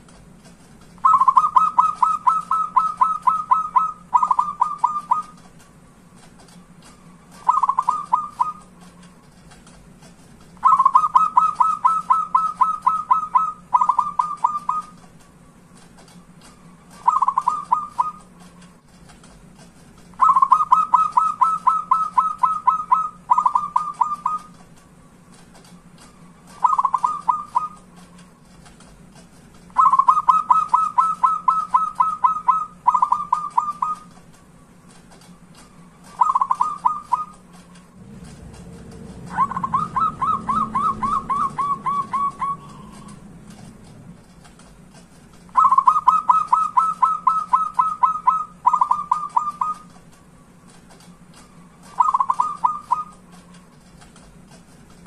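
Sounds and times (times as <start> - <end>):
faint steady hum: 0.0 - 55.0
dove cooing: 1.0 - 5.4, 7.3 - 8.8, 10.6 - 15.0, 16.9 - 18.3, 20.2 - 24.6, 26.5 - 27.9, 29.7 - 34.1, 36.0 - 37.5, 38.2 - 43.8, 45.5 - 49.9, 51.8 - 53.2
low rumbling noise: 37.9 - 44.4.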